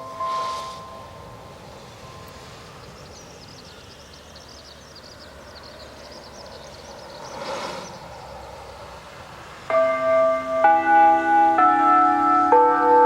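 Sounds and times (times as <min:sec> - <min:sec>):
outdoor background rumble: 0:00.0 - 0:12.8
bird twittering: 0:02.1 - 0:08.4.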